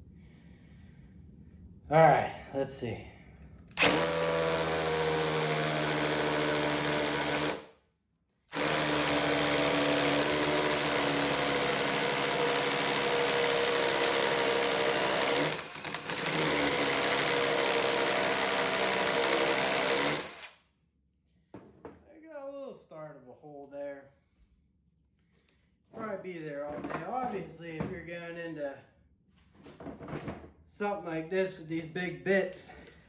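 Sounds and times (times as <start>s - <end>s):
hammer drill drilling into brick: 3.8s - 7.7s, 8.5s - 20.6s.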